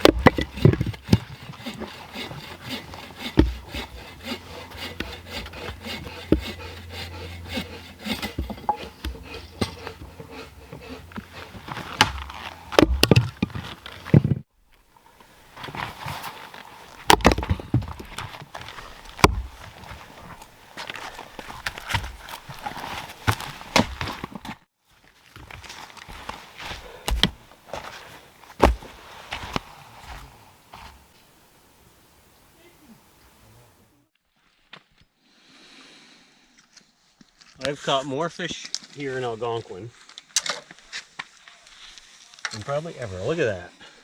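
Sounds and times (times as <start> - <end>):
saw rasping through wood: 0.0 - 14.2, 17.1 - 24.4.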